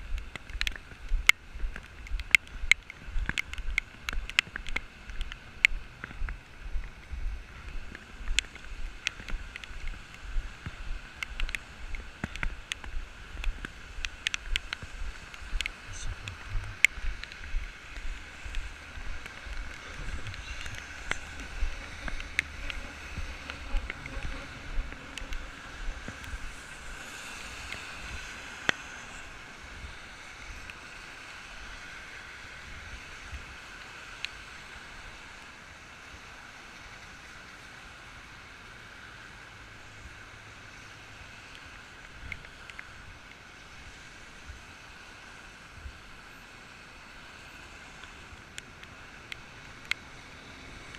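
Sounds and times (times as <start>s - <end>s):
wind rumble on microphone: 0.0s - 37.4s
raindrops ticking on camera: 0.0s - 50.9s
sharp clicks: 0.1s - 7.0s, 7.7s - 27.9s.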